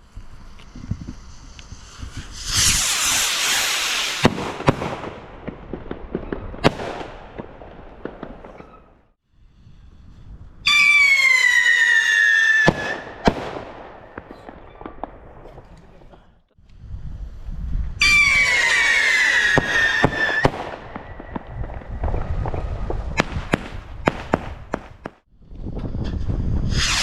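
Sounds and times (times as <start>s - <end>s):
fireworks hissing and crackling: 0.0s - 6.0s, 15.4s - 27.0s
firework whistle: 0.5s - 4.7s, 10.6s - 13.4s, 18.0s - 21.4s, 26.0s - 27.0s
firework bangs: 0.8s - 9.1s, 10.7s - 16.3s, 18.0s - 25.3s, 26.0s - 27.0s.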